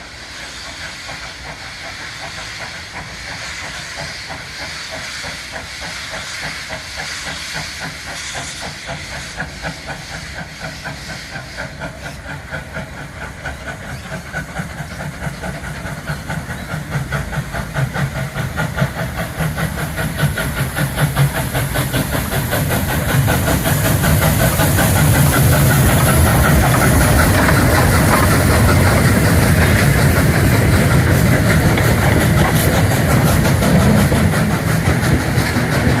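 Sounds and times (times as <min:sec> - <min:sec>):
steam hissing: 0:00.0 - 0:36.0
steam locomotive exhaust chuffs: 0:00.0 - 0:36.0.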